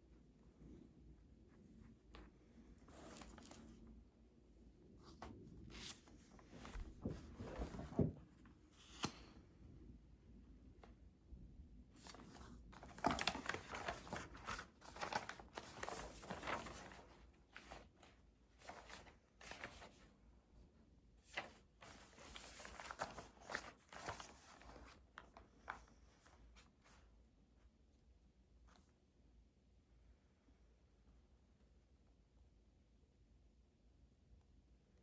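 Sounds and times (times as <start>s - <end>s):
rustling and crinkling: 1.3s - 3.9s, 5.0s - 9.1s, 12.0s - 20.1s, 21.3s - 27.1s.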